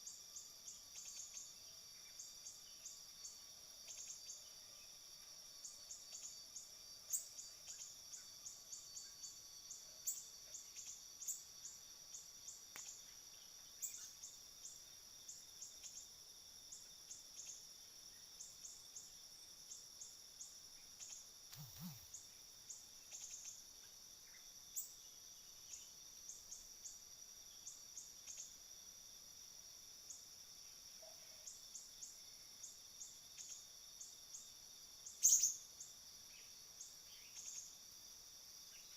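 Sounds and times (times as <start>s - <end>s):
faint insects droning: 0.0s - 38.9s
short high chirps: 21.5s - 22.1s.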